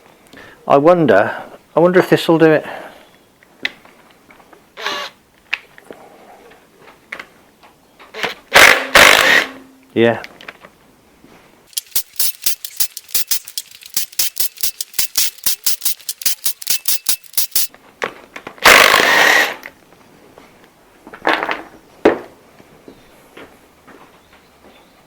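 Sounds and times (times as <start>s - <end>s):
ratchet wrench clicking: 11.7s - 17.7s.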